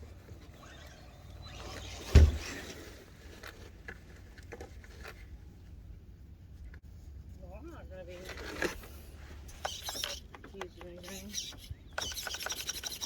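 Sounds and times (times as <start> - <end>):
rc truck rushing noise: 0.0 - 3.6
truck hitting something thump: 2.0 - 2.6.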